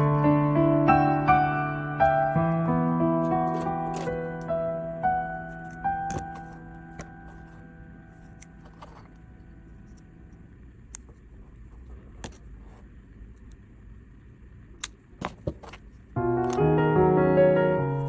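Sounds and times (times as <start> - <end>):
piano background music: 0.0 - 10.5, 16.2 - 18.0
low steady hum: 0.0 - 18.0.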